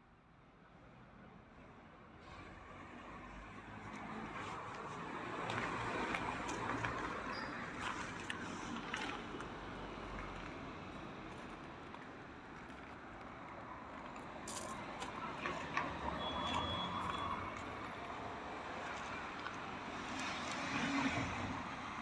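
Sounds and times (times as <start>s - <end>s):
distant traffic hum: 2.7s - 22.0s.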